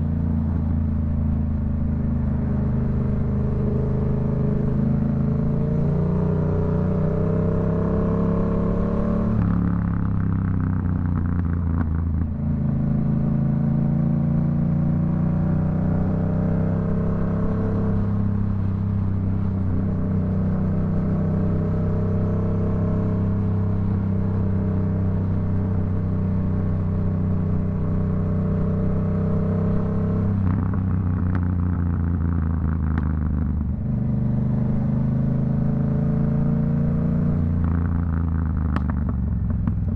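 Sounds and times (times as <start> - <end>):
motorcycle engine revving: 0.0 - 39.9
exhaust crackling and popping: 9.4 - 12.6, 30.3 - 34.1, 37.4 - 39.9.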